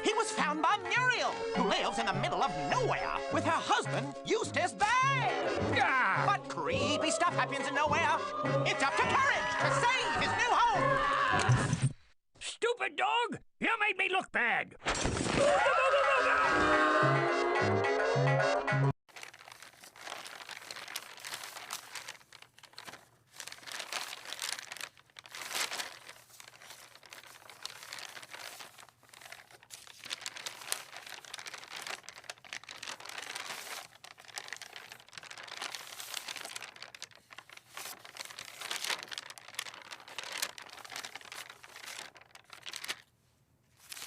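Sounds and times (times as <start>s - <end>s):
paper rustling and crinkling: 19.1s - 44.0s.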